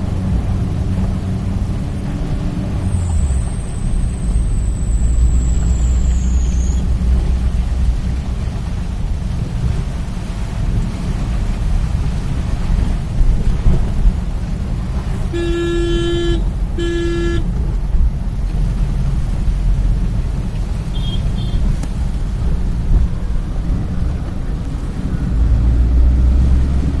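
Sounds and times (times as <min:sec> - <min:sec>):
heavy rain: 0:00.0 - 0:27.0
traffic rumble: 0:00.0 - 0:27.0
vehicle horn honking: 0:15.3 - 0:17.5, 0:20.9 - 0:21.7.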